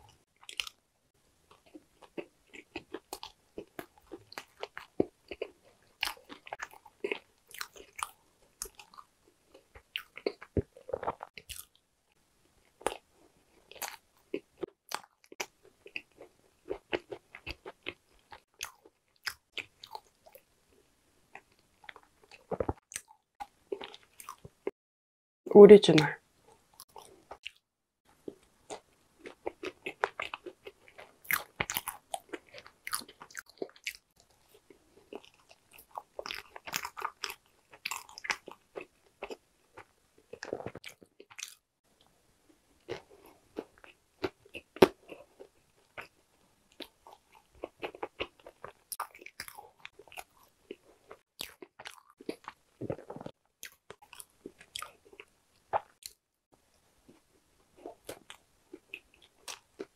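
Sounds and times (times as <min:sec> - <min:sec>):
crisp crunches of chewing: 0:01.5 - 0:11.8, 0:26.8 - 0:41.6, 0:42.8 - 0:56.2.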